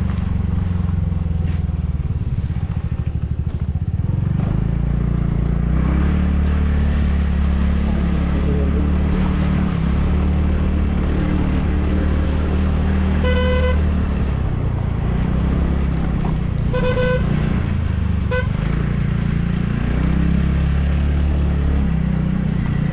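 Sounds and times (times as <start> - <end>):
scooter engine running: 0.0 - 22.9
vehicle horn toots: 13.0 - 14.0, 16.6 - 17.4, 18.3 - 18.6.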